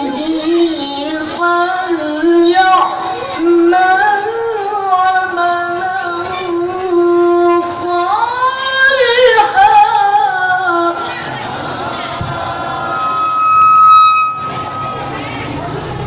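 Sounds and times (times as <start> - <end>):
child reciting melodically: 0.0 - 11.6.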